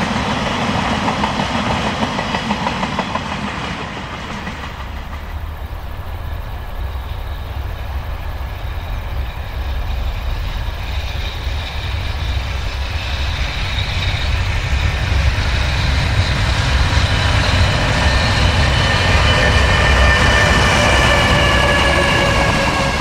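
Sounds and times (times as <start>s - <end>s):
train rumbling: 0.0s - 23.0s
high-pitched whine: 5.0s - 23.0s.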